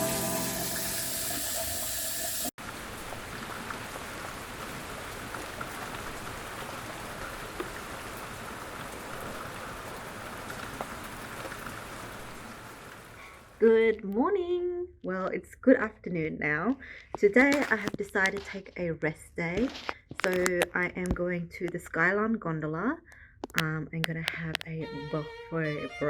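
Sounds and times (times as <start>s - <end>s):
background music: 0.0s - 1.8s, 24.9s - 26.0s
raindrops tapping on surface: 2.6s - 13.3s, 17.2s - 18.6s, 19.6s - 21.8s, 23.4s - 24.8s
light rain falling: 2.6s - 13.7s.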